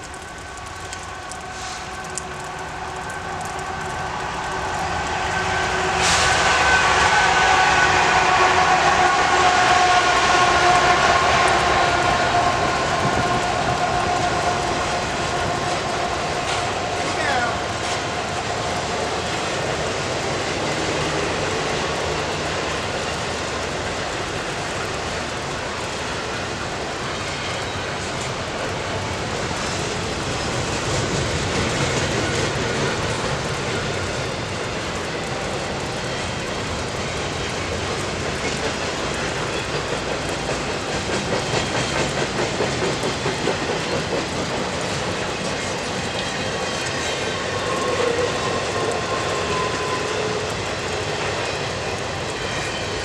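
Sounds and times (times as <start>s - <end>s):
train wheels rumbling on rail: 0.0s - 53.0s
wheels over rail joints: 11.4s - 53.0s.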